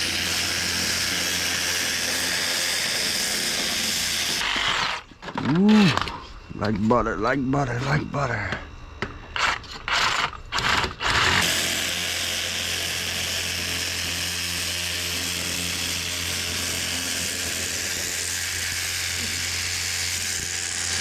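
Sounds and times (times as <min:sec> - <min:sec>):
cordless saw cutting metal: 0:00.0 - 0:05.1, 0:09.4 - 0:21.0.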